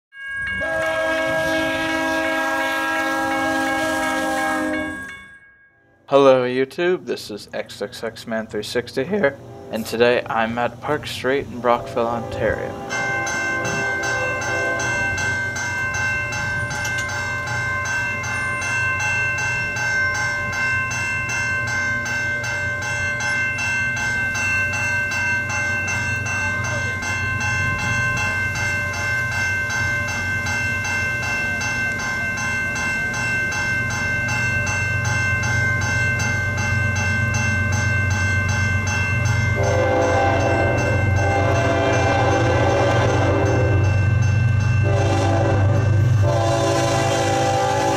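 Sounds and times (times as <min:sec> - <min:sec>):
railroad crossing bells ringing: 0:00.1 - 0:47.9
train horn blasts: 0:00.5 - 0:05.1, 0:11.6 - 0:15.2, 0:39.6 - 0:43.8, 0:44.8 - 0:47.9
locomotive rumble: 0:07.6 - 0:21.1.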